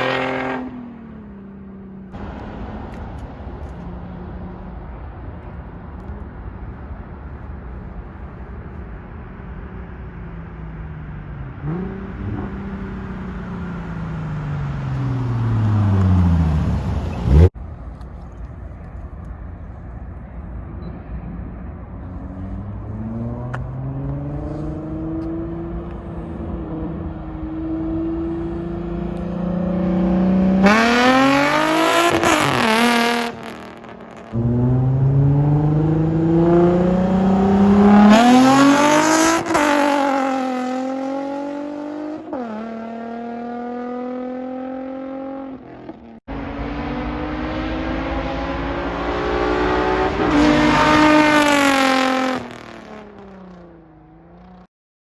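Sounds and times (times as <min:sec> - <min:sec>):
sports car engine revving past: 0:00.0 - 0:01.4, 0:11.4 - 0:17.6, 0:22.1 - 0:54.7.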